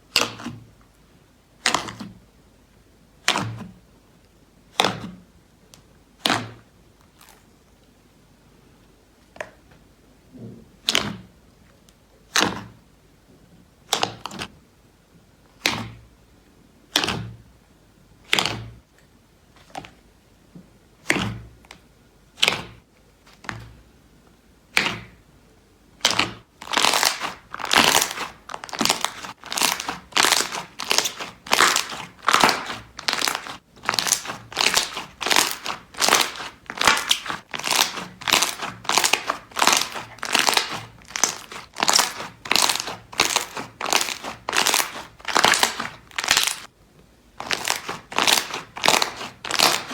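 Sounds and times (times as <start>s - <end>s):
slime popping: 24.7s - 25.2s, 26.0s - 46.7s, 47.4s - 49.9s
slime crunching when squeezed: 26.0s - 46.7s, 47.4s - 49.9s.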